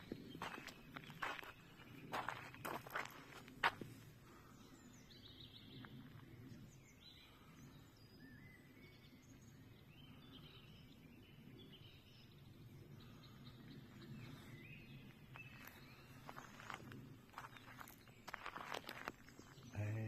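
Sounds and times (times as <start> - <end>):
crunch underfoot: 0.0 - 4.1, 15.0 - 19.8
birds chirping: 0.0 - 20.0.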